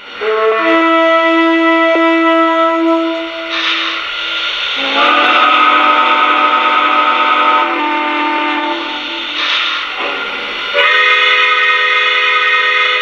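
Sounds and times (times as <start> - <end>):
steam hiss: 0.0 - 13.0
steam whistle blast: 0.0 - 13.0.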